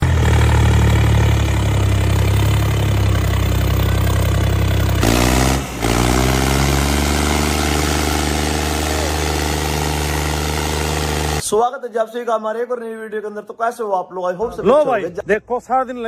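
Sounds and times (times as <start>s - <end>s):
diesel tractor engine running: 0.0s - 11.4s.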